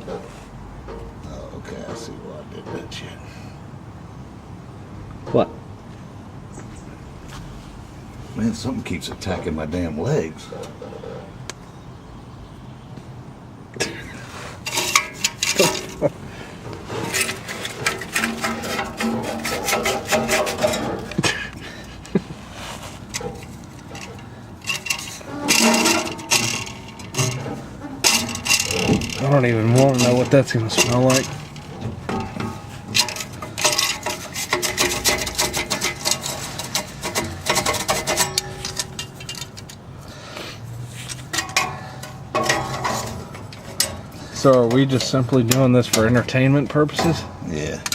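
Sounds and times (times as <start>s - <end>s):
hand tools clicking and scraping metal: 13.8s - 47.9s.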